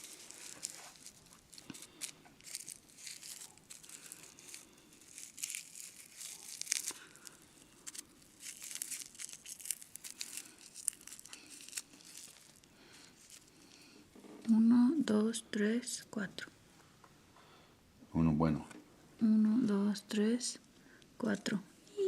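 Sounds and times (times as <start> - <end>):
paper and leaf crinkling: 0.0 - 14.0.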